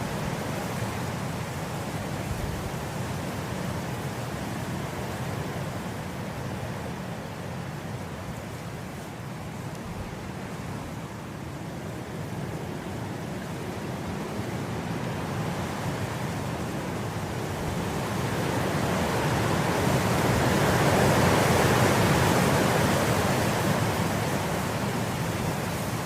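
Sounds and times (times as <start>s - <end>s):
wind blowing through grass: 0.0s - 26.0s.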